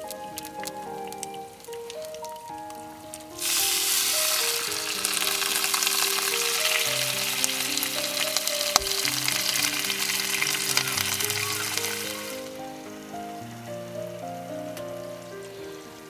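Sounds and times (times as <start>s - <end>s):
meat sizzling on hot plate: 0.0s - 16.0s.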